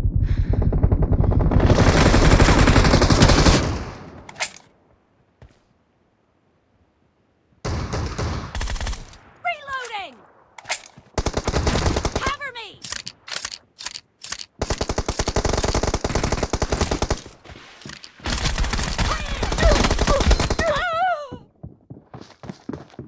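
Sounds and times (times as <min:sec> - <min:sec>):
video game automatic gunfire: 0:00.6 - 0:04.0, 0:11.2 - 0:12.4.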